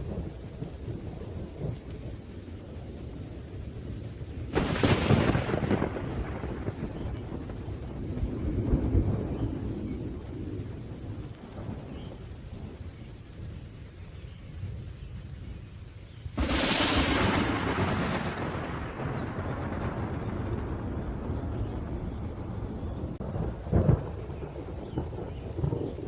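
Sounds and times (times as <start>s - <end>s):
low rolling thunder: 0.0s - 26.0s
steady rain: 0.0s - 26.0s
sharp thunderclap: 4.5s - 12.1s, 16.4s - 26.0s.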